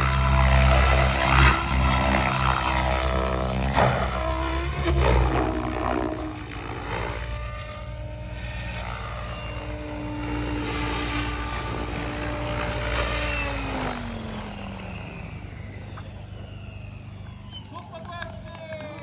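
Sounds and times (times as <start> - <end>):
rc helicopter rotor whine: 0.0 - 19.0.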